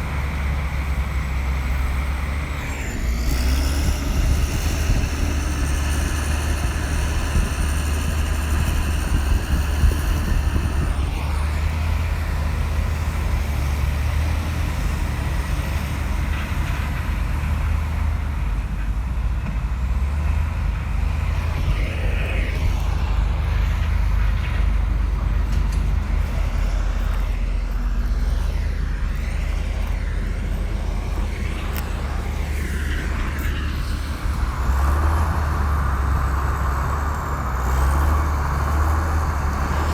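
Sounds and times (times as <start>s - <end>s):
bulldozer diesel engine droning: 0.0s - 39.9s
high whine: 21.1s - 39.9s.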